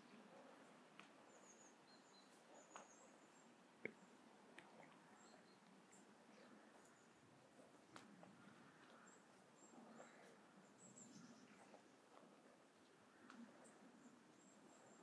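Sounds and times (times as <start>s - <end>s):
distant birds chirping: 0.0s - 15.0s.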